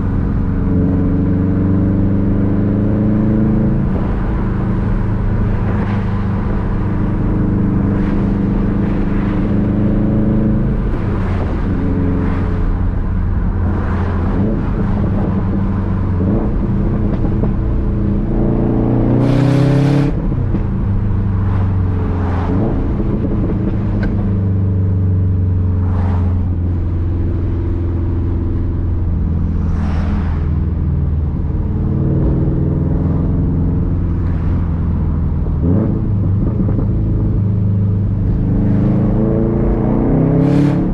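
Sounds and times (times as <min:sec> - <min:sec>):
car engine rumbling and revving: 0:00.0 - 0:40.9.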